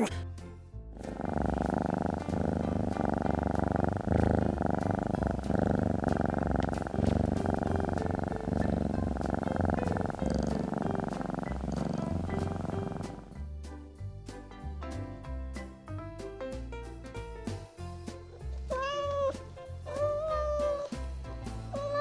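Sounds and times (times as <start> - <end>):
cat purring: 1.0 - 13.4, 21.6 - 22.0.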